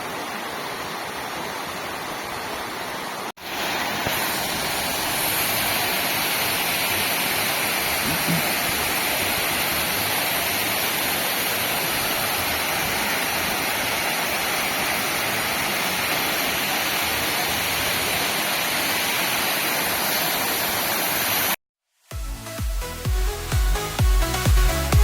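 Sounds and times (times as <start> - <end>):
waterfall rushing: 0.0 - 21.6
electronic dance music: 22.1 - 25.0.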